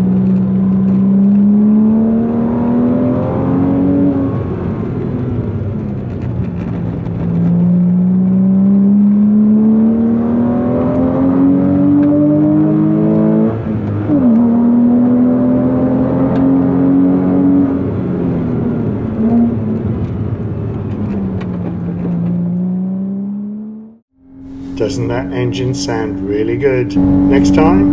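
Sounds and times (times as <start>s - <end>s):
car engine revving: 0.0s - 27.9s.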